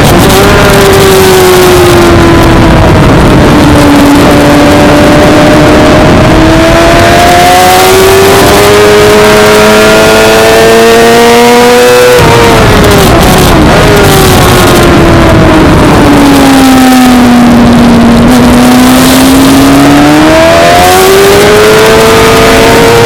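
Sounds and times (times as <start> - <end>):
loud motorcycle engine revving: 0.0 - 23.0.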